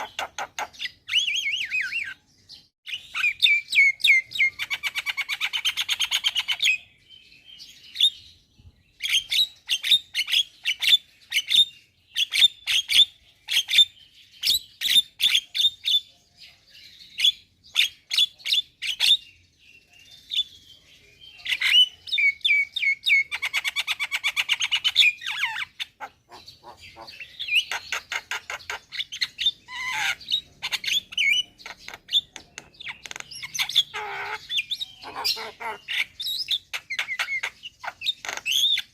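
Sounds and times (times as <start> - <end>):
myna whistling and chattering: 21.5 - 38.9.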